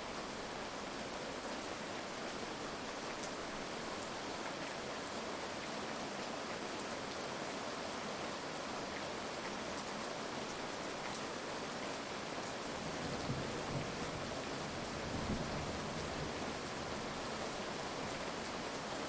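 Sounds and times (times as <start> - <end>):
heavy rain: 0.0 - 19.0
low rumbles of thunder: 14.8 - 16.5.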